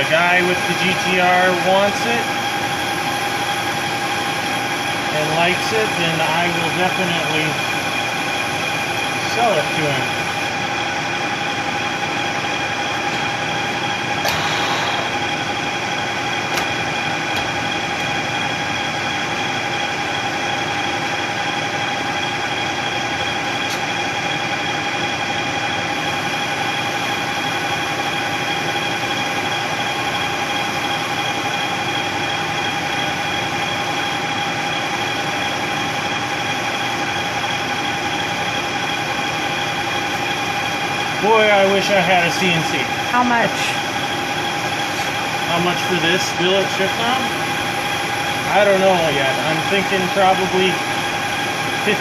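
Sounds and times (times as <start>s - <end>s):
machine tool whining: 0.0s - 52.0s.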